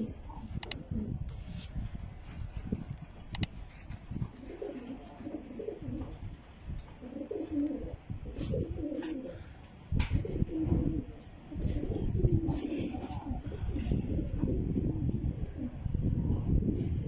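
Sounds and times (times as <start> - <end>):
pigeons cooing: 0.0 - 1.3, 4.1 - 16.4.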